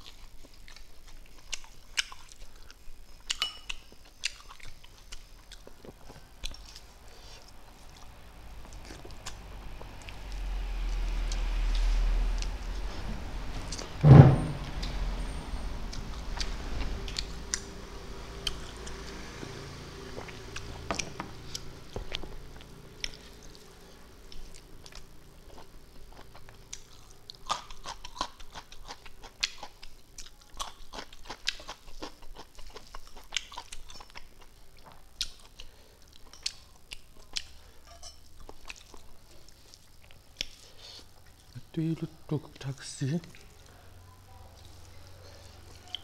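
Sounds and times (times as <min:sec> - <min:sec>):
chewing and lip smacks: 0:00.0 - 0:12.5, 0:20.0 - 0:37.7, 0:38.4 - 0:41.6.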